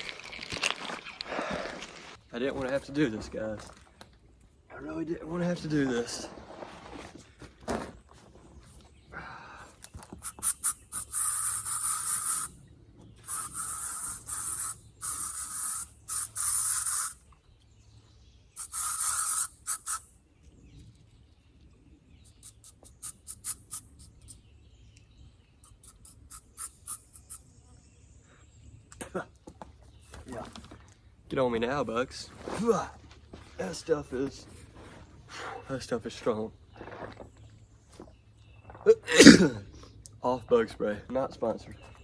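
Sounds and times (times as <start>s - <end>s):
aerosol spray hissing: 10.3s - 12.5s, 13.3s - 17.2s, 18.6s - 20.0s.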